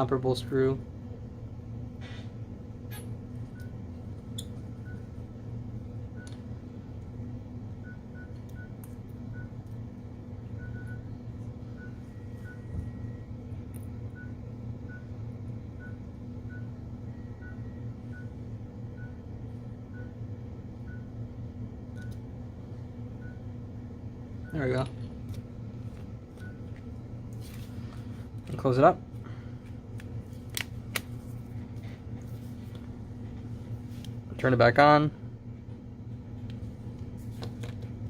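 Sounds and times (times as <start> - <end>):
electrical hum: 0.0 - 38.0.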